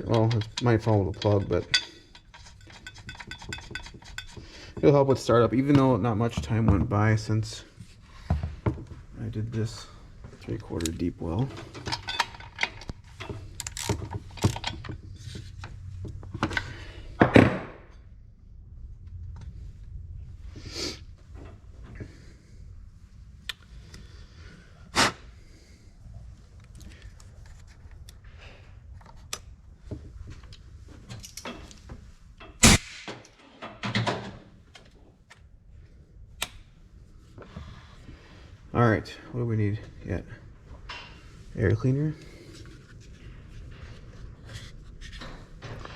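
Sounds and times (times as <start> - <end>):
metallic clatter: 0.0 - 4.4
tools knocking and rattling: 0.0 - 7.3, 10.7 - 18.1, 29.9 - 35.0.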